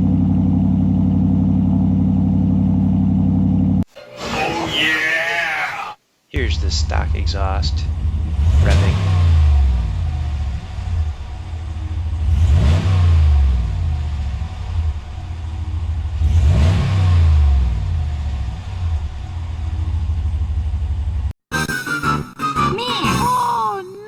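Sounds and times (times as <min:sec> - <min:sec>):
v eight engine idling and revving: 0:00.0 - 0:03.8, 0:06.4 - 0:21.4.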